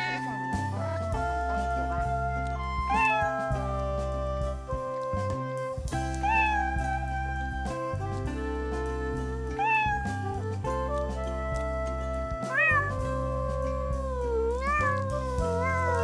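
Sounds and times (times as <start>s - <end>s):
cat meowing: 0.0s - 0.6s, 2.8s - 4.2s, 6.1s - 7.8s, 9.2s - 16.0s
background music: 0.0s - 16.0s.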